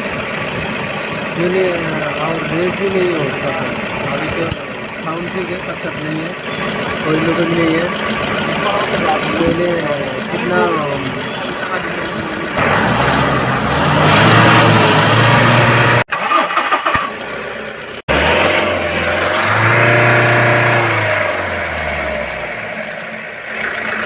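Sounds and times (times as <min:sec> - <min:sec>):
diesel engine revving: 0:00.0 - 0:24.0.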